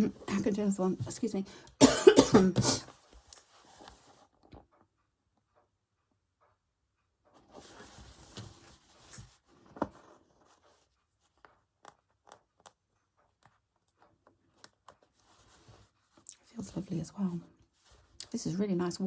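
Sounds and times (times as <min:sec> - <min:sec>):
needle and yarn dragging through fabric: 0:07.5 - 0:09.5.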